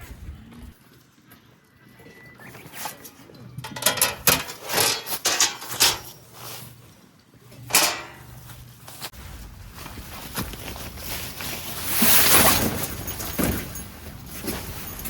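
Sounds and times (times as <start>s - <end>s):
rustling and light clattering: 3.6s - 15.0s.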